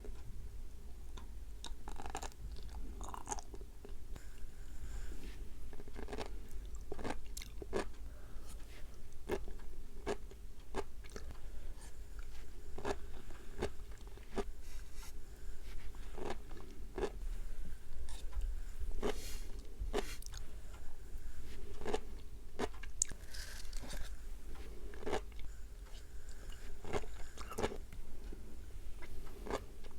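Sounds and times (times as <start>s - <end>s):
low steady hum: 0.0s - 29.9s
chewing with crisp popping clicks: 5.8s - 8.1s, 22.6s - 23.9s.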